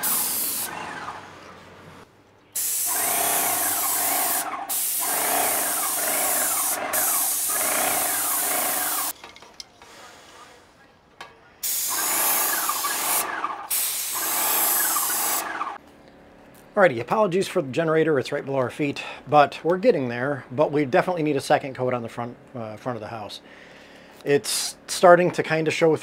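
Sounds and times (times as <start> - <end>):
paint sprayer hissing: 0.0 - 1.1, 2.6 - 9.2, 11.6 - 15.8
sprayer motor whine: 0.0 - 1.7, 2.8 - 9.1.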